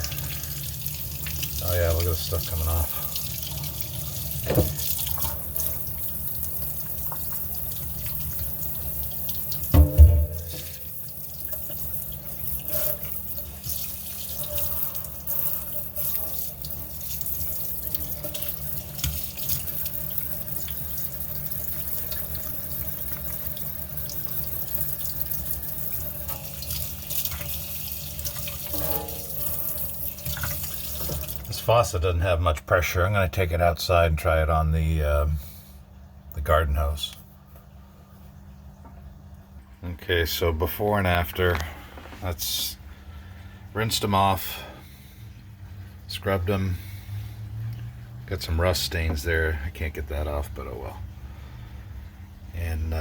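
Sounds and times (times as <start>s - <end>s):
faucet running into sink: 0.0s - 31.7s
handling thump: 9.7s - 10.8s.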